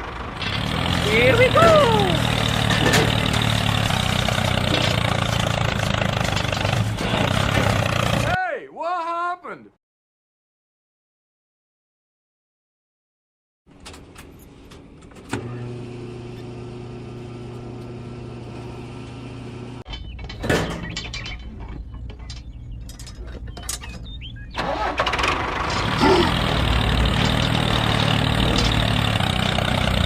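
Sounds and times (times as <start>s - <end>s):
knocks and clatter: 0.0s - 8.4s, 19.8s - 24.2s, 25.0s - 30.0s
rough engine running: 0.0s - 8.4s, 24.5s - 30.0s
motor humming: 15.3s - 19.8s.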